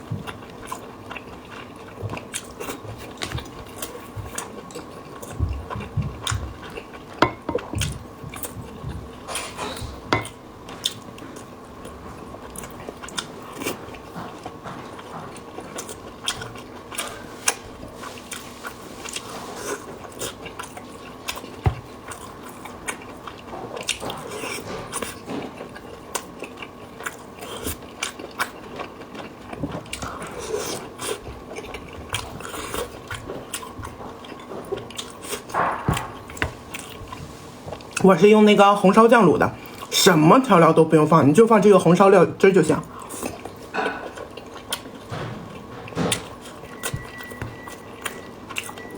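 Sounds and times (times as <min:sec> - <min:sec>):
wet chewing and biting: 0:00.0 - 0:38.2, 0:42.9 - 0:48.9.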